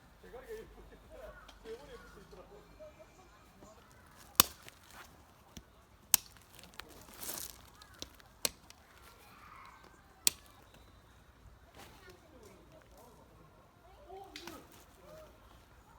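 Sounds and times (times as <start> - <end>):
rustle: 6.2 - 10.8, 11.7 - 15.9.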